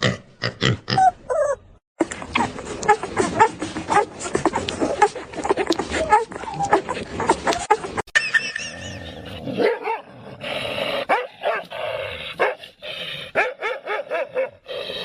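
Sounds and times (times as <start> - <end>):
dog barking: 9.6 - 10.1, 11.1 - 11.7, 12.4 - 12.6, 13.4 - 14.6.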